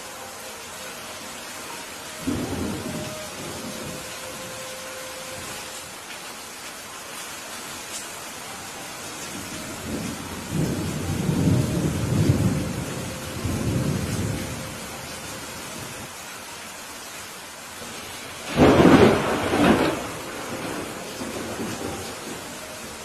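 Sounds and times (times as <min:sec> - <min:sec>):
steady rain falling: 0:00.0 - 0:23.0
thunder rumble: 0:02.2 - 0:04.6, 0:09.3 - 0:15.9, 0:18.4 - 0:23.0.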